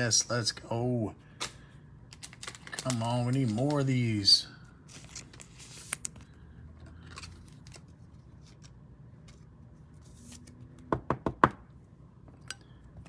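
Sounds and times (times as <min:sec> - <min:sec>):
trading cards clicking and rustling: 0:01.4 - 0:04.3, 0:04.9 - 0:09.5.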